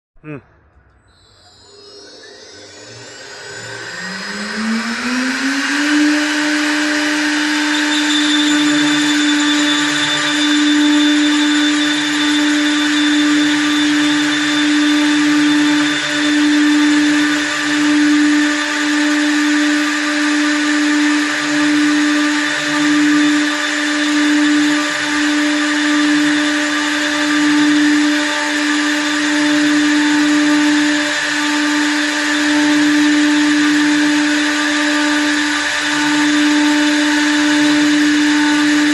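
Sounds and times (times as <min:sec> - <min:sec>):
wood lathe motor humming: 0:01.5 - 0:38.9.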